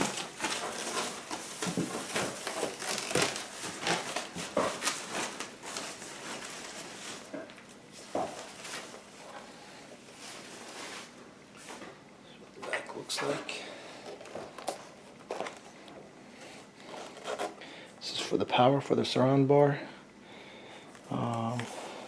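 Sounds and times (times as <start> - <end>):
packaging crinkling and rustling: 0.0 - 9.5, 14.0 - 15.8.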